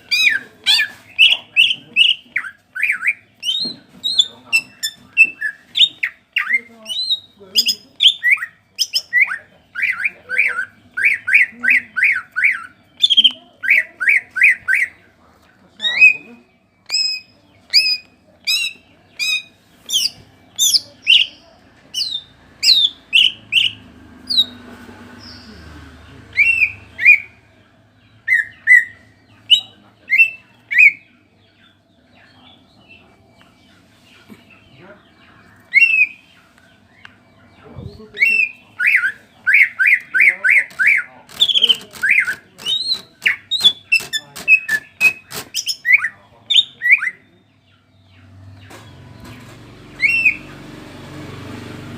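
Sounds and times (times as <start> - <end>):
bird singing whistled notes: 26.3 - 27.4, 35.6 - 37.2, 37.8 - 47.4, 50.0 - 50.5.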